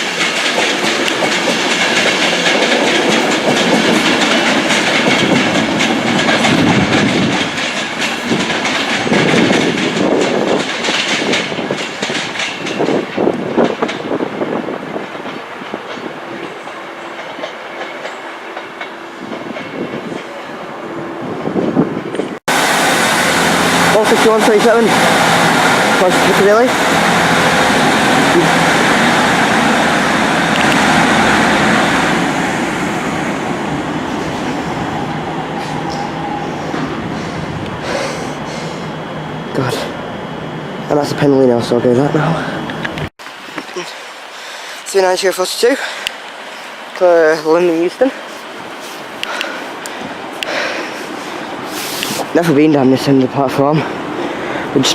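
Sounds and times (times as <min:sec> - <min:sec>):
train wheels clattering over rail joints: 0:00.0 - 0:20.4
train rolling rush: 0:00.0 - 0:54.9.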